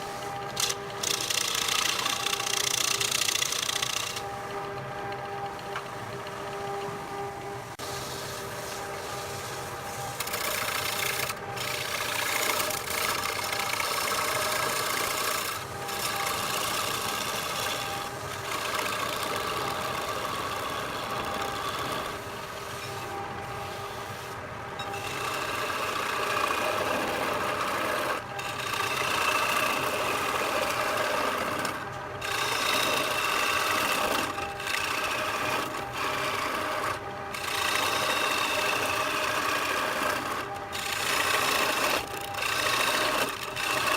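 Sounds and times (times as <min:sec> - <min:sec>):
cutting tool scraping wood: 0:00.0 - 0:09.0, 0:09.7 - 0:23.2, 0:24.8 - 0:43.9
wood lathe motor whine: 0:00.0 - 0:43.9.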